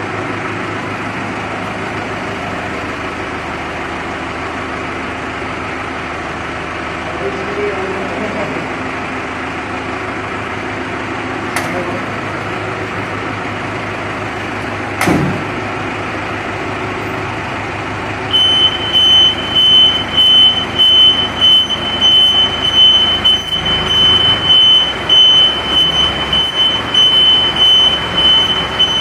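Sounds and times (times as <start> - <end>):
tow truck engine running: 0.0 - 29.0
high-pitched tone: 18.3 - 29.0.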